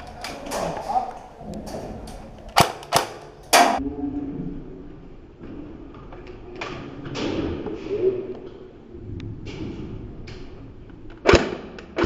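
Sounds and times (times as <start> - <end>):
airsoft guns firing: 2.6 - 3.8.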